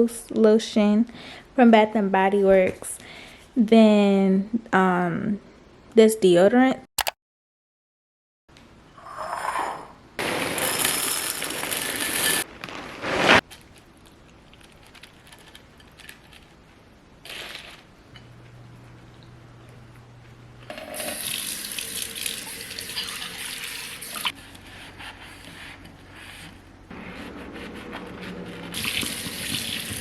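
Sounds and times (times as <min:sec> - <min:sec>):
tap water running into sink: 0:20.7 - 0:24.3, 0:28.8 - 0:30.0.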